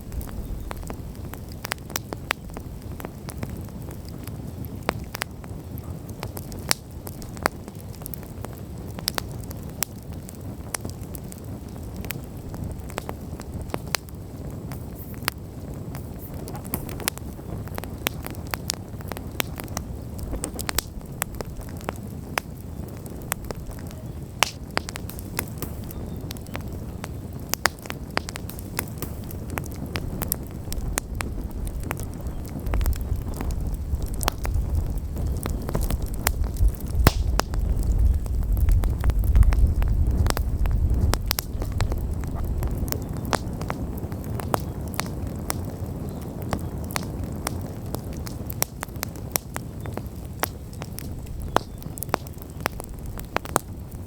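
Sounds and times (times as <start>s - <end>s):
campfire crackling and popping: 0.0s - 54.0s
low rush of flame: 0.0s - 54.0s.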